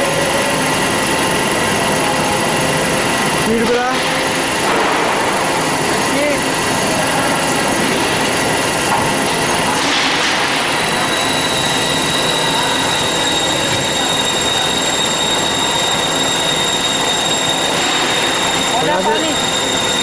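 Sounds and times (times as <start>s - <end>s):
high whine: 0.0s - 20.0s
band saw screeching through metal: 10.6s - 20.0s.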